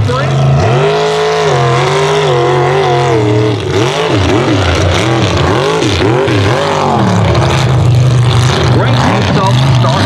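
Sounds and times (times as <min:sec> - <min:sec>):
truck engine revving: 0:00.0 - 0:10.0.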